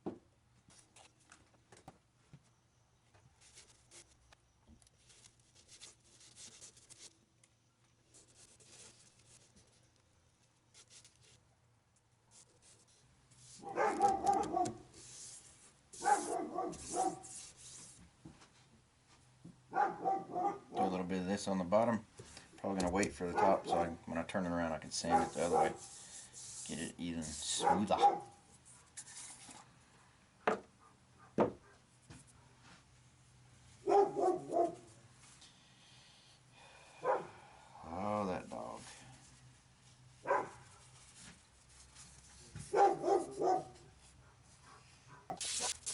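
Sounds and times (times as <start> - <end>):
dog barking: 13.6 - 14.8, 16.0 - 17.2, 19.7 - 21.0, 23.3 - 24.0, 25.1 - 25.8, 27.6 - 28.3, 33.8 - 34.9, 37.0 - 37.3, 40.2 - 40.6, 42.7 - 45.3.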